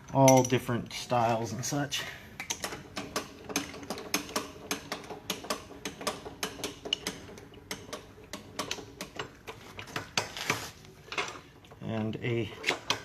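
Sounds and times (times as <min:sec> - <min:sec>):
steel parts clinking: 0:00.0 - 0:01.6.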